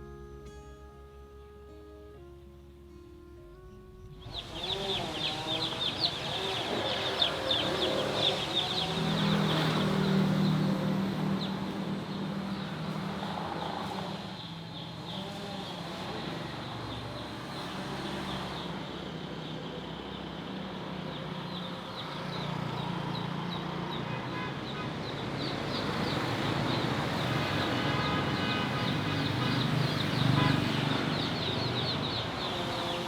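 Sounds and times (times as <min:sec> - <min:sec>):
chicks peeping: 0:04.2 - 0:09.3.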